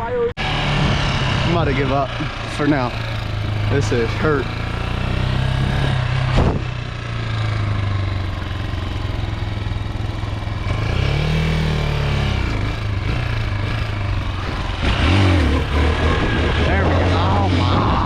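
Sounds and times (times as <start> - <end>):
dirt bike engine revving: 0.0 - 18.0
man talking: 1.4 - 3.0, 3.7 - 4.6, 16.6 - 18.0.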